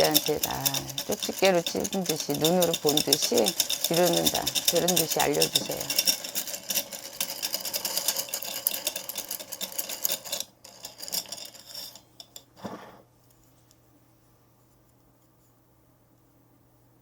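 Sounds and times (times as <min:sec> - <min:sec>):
jingling metal rattle: 0:00.0 - 0:12.0.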